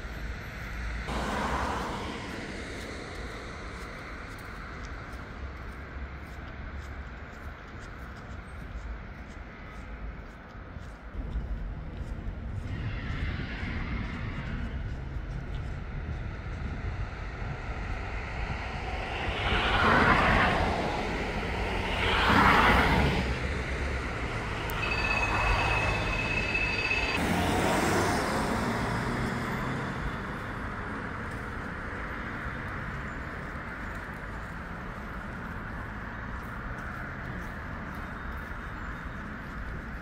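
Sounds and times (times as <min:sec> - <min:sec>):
city traffic rumble: 0:00.0 - 0:40.0
vehicles passing close by: 0:00.0 - 0:40.0
thin high squeal: 0:21.7 - 0:27.2.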